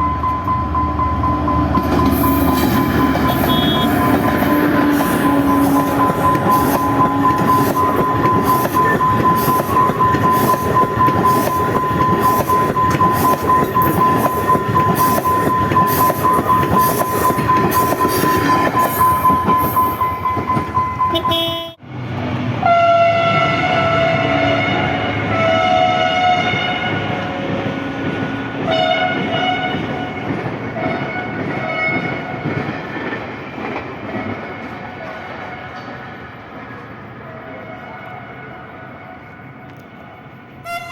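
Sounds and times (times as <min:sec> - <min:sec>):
steady high tone: 0:00.0 - 0:21.5
train wheel clatter: 0:01.6 - 0:21.2
locomotive horn blasts: 0:03.0 - 0:08.9, 0:21.1 - 0:21.8, 0:22.6 - 0:27.5, 0:28.7 - 0:30.2, 0:40.6 - 0:40.9.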